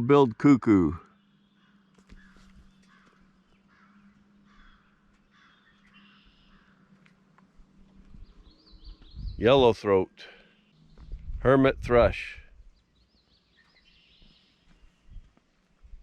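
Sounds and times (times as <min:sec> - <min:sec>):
wild birds calling: 0:00.8 - 0:11.4, 0:12.5 - 0:15.7
low hum: 0:01.0 - 0:13.0
bird cawing: 0:01.4 - 0:07.6.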